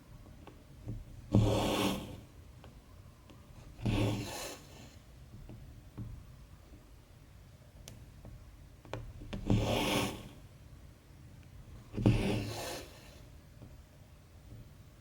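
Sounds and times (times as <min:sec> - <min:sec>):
thread rasping through fabric: 0:00.4 - 0:02.3, 0:03.6 - 0:04.9, 0:11.9 - 0:13.2.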